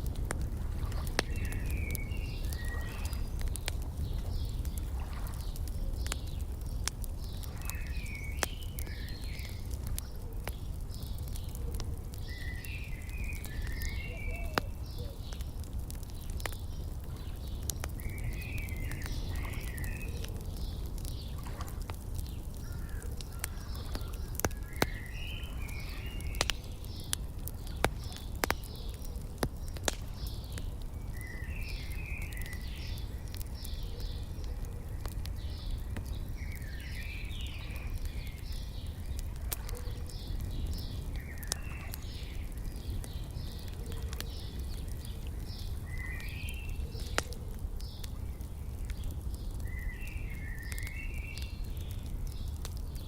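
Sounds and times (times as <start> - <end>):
wood fire crackling: 0.0 - 53.0
small birds chirping: 0.1 - 53.0.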